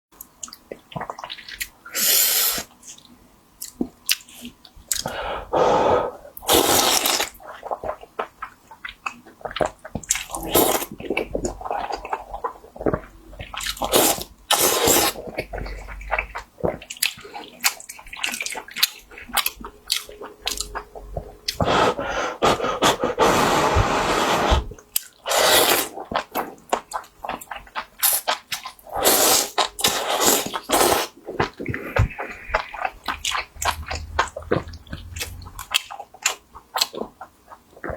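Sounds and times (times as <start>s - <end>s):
chewing with smacks: 0.2s - 1.8s, 3.0s - 5.2s, 7.3s - 14.3s, 15.2s - 21.6s, 25.9s - 28.9s, 29.5s - 37.9s
wet slurping: 6.4s - 8.0s, 21.5s - 27.0s, 28.0s - 37.2s.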